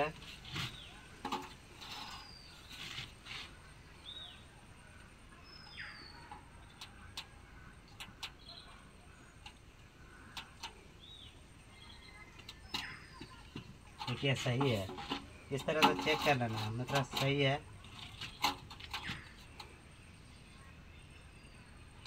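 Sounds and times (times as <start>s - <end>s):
birds chirping and whistling: 1.8s - 3.4s, 10.4s - 22.0s.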